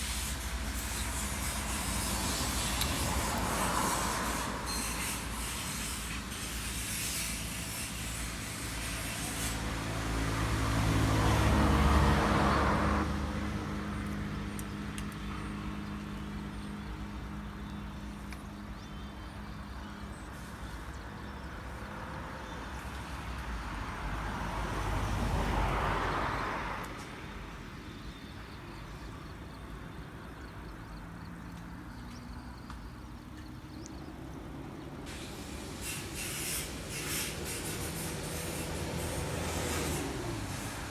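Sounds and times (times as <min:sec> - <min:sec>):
vehicles passing on road: 0:00.0 - 0:40.9.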